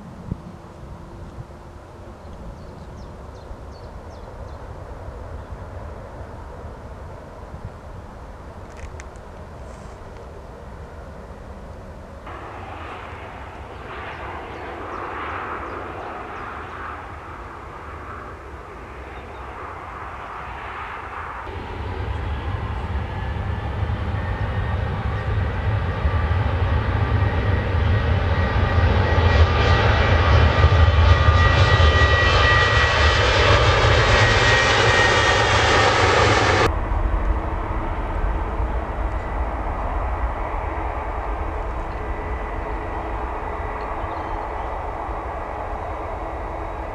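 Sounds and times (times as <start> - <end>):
jet airliner passing: 0.0 - 46.9.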